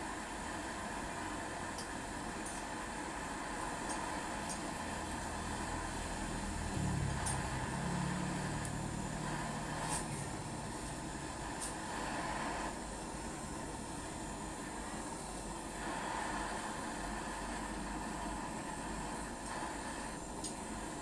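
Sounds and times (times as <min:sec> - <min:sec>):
gas torch hissing: 0:00.0 - 0:21.0
low engine-like hum: 0:04.7 - 0:15.0.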